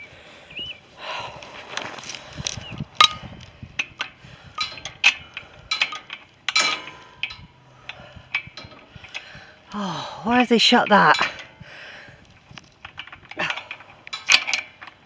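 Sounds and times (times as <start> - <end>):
metal gate latch clinking: 5.7 - 7.4.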